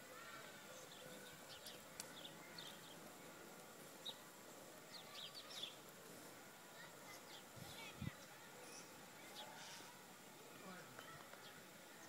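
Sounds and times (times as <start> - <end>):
faint bird chirps: 4.9 - 5.8, 7.0 - 10.0.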